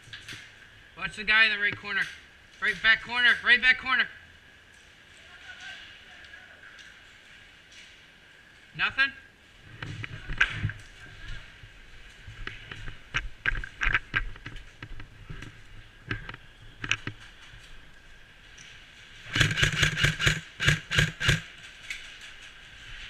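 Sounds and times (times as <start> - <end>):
automatic airsoft gun burst: 19.3 - 21.5.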